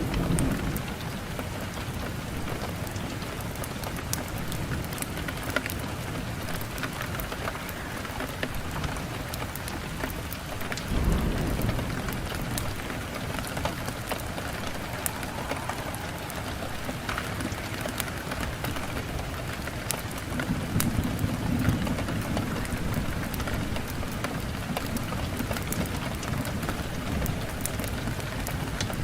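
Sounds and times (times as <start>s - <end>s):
wood fire crackling and popping: 2.8s - 29.0s
rumbling flame: 10.1s - 23.1s.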